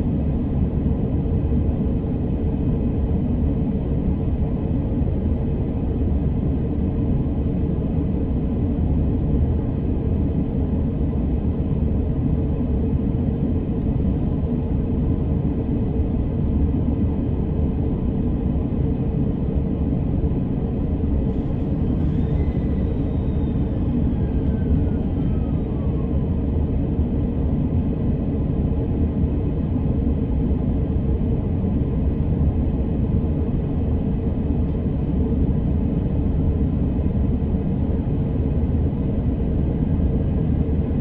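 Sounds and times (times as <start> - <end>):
faint falling whine: 21.1 - 27.2.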